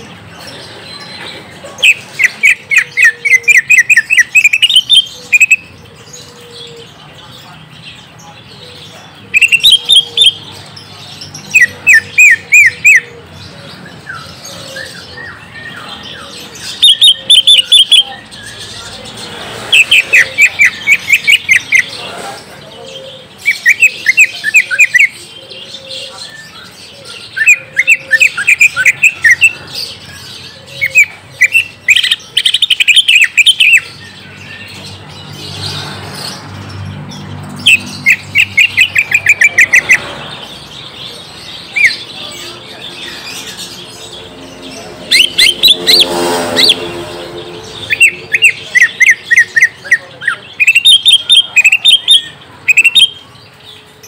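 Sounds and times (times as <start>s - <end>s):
bird chirping high notes: 43.1s - 49.8s.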